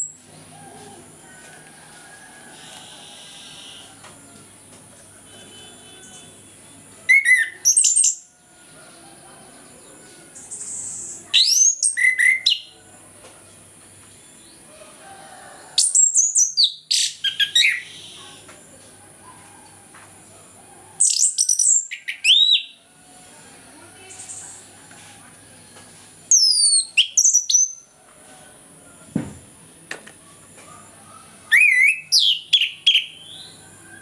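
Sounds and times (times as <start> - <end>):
thrush singing whistled notes: 26.3 - 27.8, 31.5 - 34.0.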